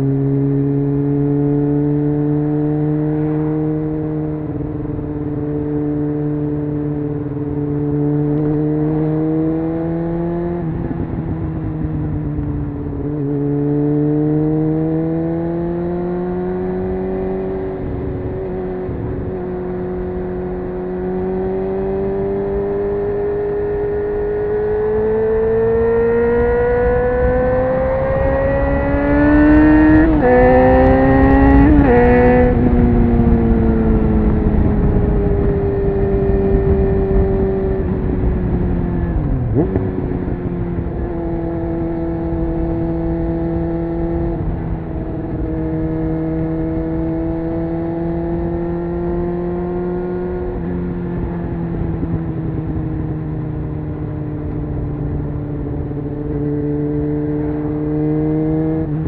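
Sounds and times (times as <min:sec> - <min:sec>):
motorcycle engine revving: 0:00.0 - 0:59.0
wind rush: 0:16.4 - 0:58.2.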